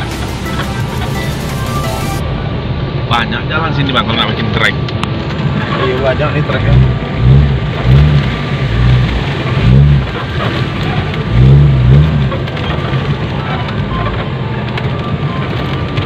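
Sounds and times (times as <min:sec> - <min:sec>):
tyres rumbling: 0:00.0 - 0:16.0
off-road vehicle engine revving: 0:05.4 - 0:14.3.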